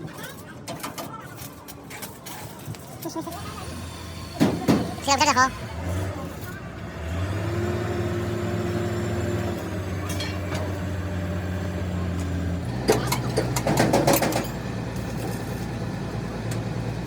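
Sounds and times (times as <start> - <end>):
engine hum: 3.1 - 17.0
knocks and clatter: 12.2 - 15.7.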